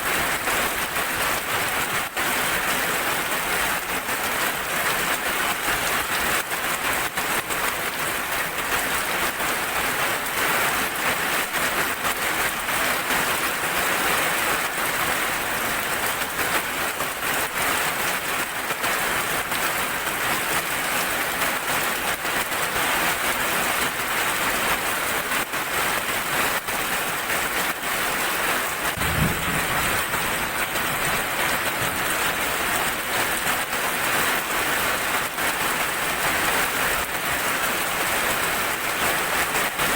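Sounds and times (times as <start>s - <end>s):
heavy rain pattering: 0.0s - 39.9s
low rumble: 29.0s - 32.5s.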